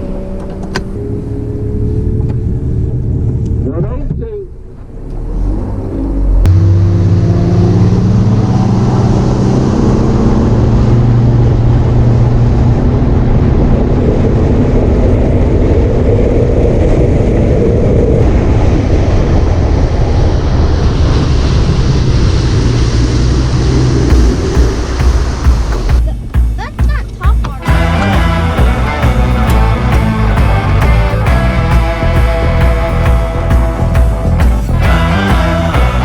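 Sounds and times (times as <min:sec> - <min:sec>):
loud rush of noise: 0:05.3 - 0:36.0
outboard motor running hard: 0:23.2 - 0:36.0.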